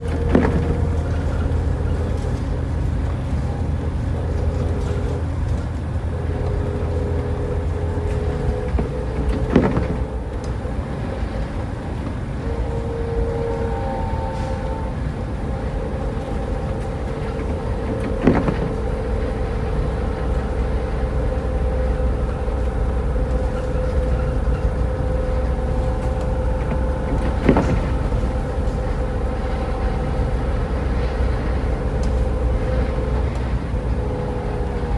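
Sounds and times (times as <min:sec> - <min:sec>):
short knocks: 0:00.0 - 0:10.6, 0:17.1 - 0:21.6, 0:22.6 - 0:33.5
car road and engine rumble: 0:00.0 - 0:34.9
faint hum: 0:00.0 - 0:34.9.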